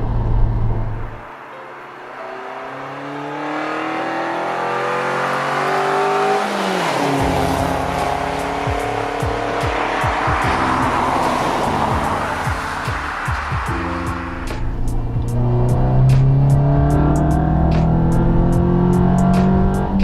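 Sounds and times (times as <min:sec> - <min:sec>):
car engine accelerating: 0:00.0 - 0:20.0
music with heavy bass beats: 0:07.2 - 0:20.0.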